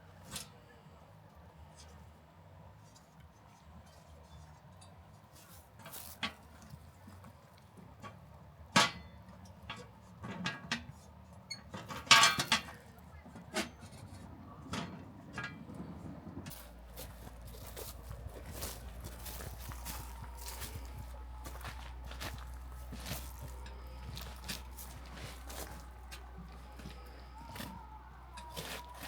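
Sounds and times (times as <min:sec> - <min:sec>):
small hard objects clinking: 0:16.5 - 0:29.0.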